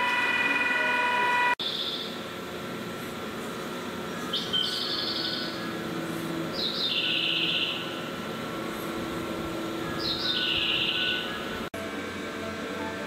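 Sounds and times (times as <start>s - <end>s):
bird calling with trilled note: 4.3s - 5.9s, 6.5s - 8.1s, 9.8s - 11.7s.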